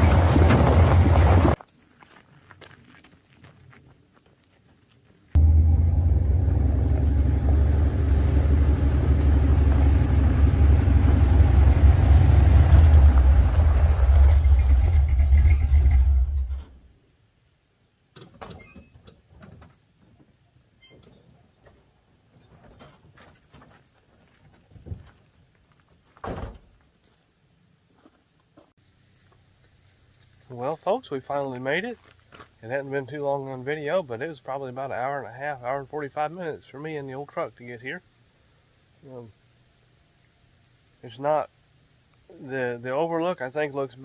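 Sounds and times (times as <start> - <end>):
truck engine and road rumble: 0.0 - 1.6, 5.3 - 16.9.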